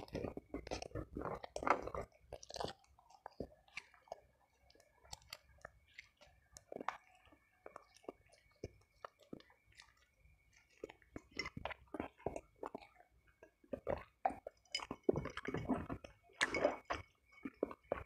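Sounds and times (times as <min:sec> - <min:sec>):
chewing with wet mouth clicks: 0:00.0 - 0:18.0.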